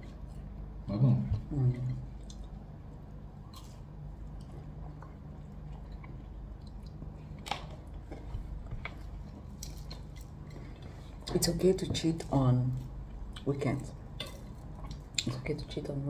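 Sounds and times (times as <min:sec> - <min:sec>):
steady low hum: 0:00.0 - 0:16.0
person chewing food: 0:01.8 - 0:11.3, 0:12.8 - 0:15.3.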